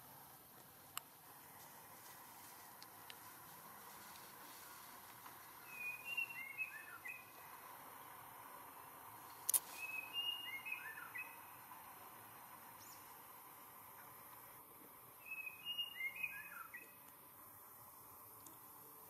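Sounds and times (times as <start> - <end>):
bird chirping: 5.6 - 8.2, 9.5 - 11.7, 12.8 - 13.2, 15.2 - 17.1.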